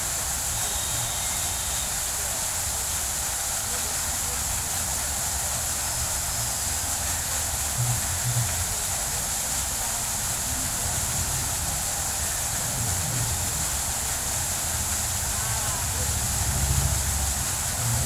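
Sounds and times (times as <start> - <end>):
water fountain splashing: 0.0 - 18.0.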